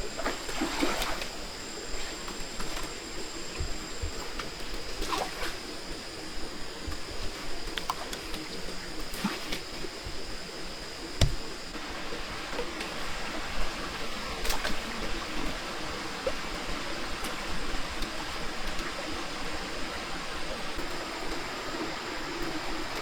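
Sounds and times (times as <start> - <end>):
sharp knocks: 11.2 - 11.6.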